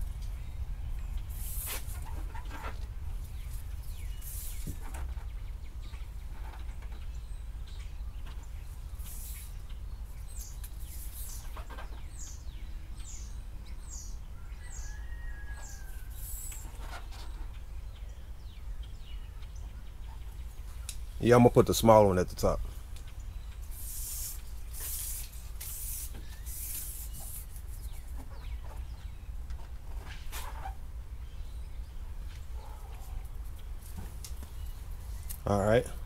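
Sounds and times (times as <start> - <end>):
bird chirping: 0.0 - 36.0
tape rustling: 23.7 - 28.9.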